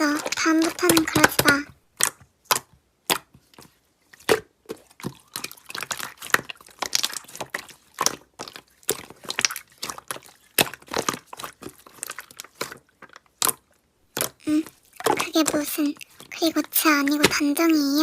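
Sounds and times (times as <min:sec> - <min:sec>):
slime squeezed by hand: 0:04.2 - 0:17.4.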